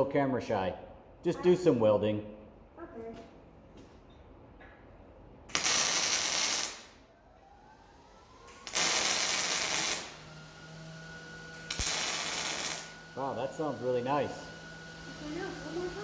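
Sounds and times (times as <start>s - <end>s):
welding arc crackling: 5.5s - 7.0s, 8.5s - 10.3s, 11.4s - 16.0s.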